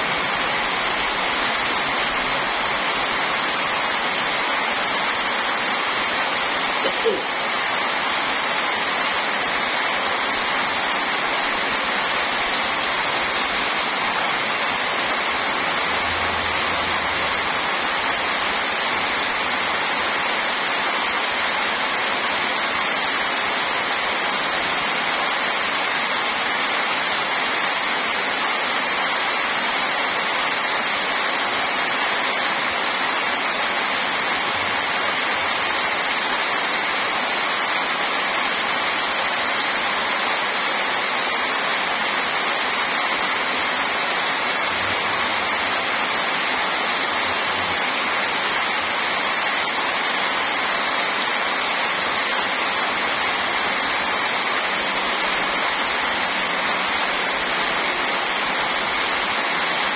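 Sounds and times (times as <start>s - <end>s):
heavy rain on pavement: 0.0s - 59.9s.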